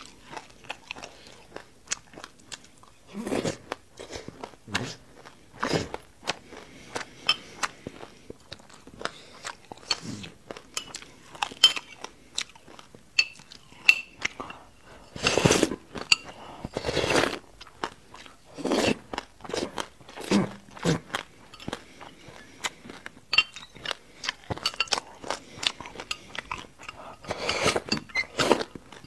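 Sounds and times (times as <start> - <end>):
chewing crunches: 0.0 - 29.0
slurps: 15.0 - 15.8, 16.6 - 17.4, 25.4 - 28.7.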